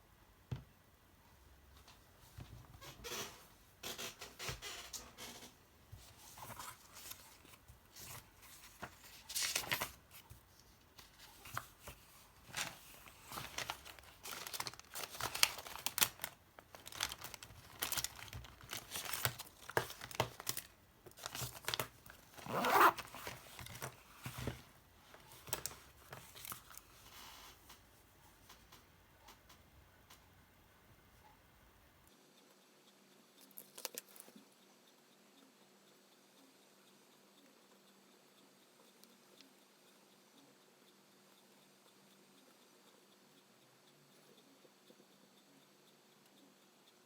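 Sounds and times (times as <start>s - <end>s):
packaging crinkling and tearing: 6.2s - 10.2s, 11.0s - 24.6s.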